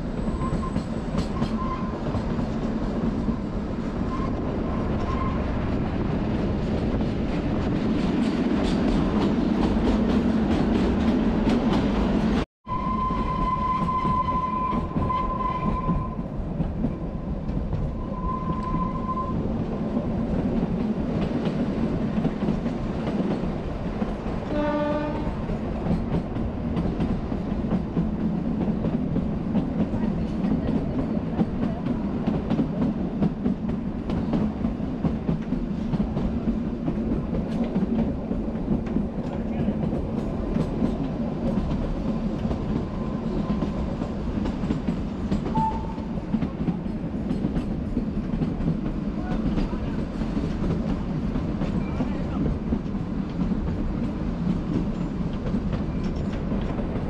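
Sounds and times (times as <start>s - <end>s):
train running on rails: 0.0s - 57.0s
high train horn blasts: 12.7s - 16.2s, 24.4s - 25.5s, 45.5s - 46.2s.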